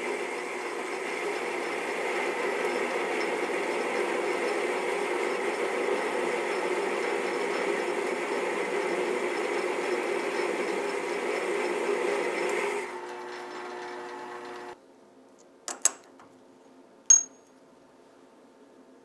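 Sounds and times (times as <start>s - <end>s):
lathe cutting steel: 0.0s - 14.8s
lathe running: 0.0s - 14.8s
brief metallic ringing: 17.1s - 17.5s.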